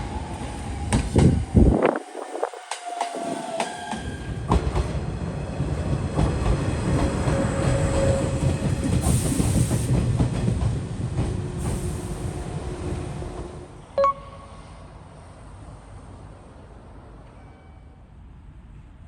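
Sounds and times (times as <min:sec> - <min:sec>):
train rumbling on rails: 0:00.0 - 0:19.0.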